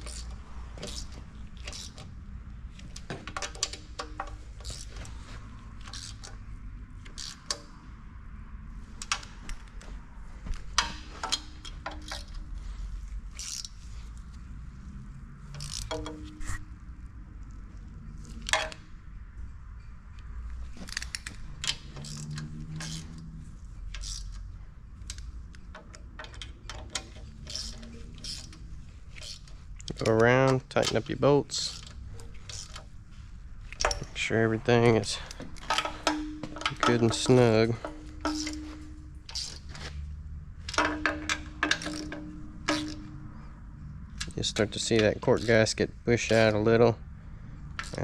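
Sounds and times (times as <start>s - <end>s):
tools clinking on metal: 2.8s - 5.1s, 10.8s - 12.5s, 15.5s - 16.6s, 25.0s - 28.6s, 33.7s - 40.0s, 40.6s - 43.5s, 44.2s - 46.7s.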